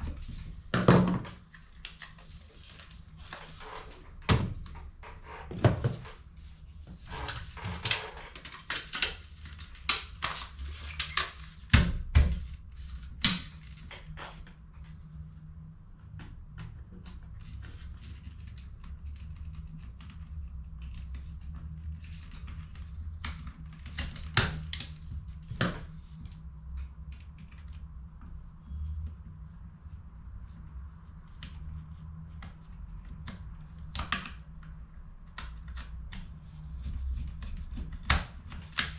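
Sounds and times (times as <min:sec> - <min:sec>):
steady low hum: 0:11.6 - 0:38.8.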